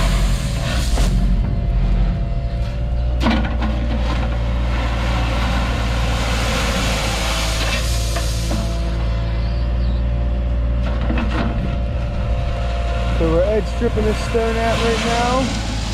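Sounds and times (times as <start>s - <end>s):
excavator diesel engine running: 0.0s - 15.9s.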